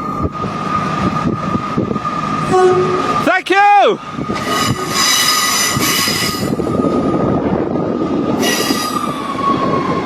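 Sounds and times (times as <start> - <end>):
train wheels rumbling: 0.0 - 10.0
high-pitched wheel squeal: 4.3 - 6.7, 8.4 - 9.3.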